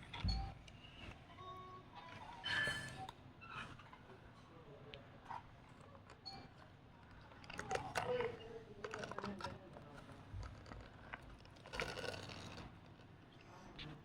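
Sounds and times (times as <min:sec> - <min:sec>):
small toys clicking and knocking: 0:06.1 - 0:13.2.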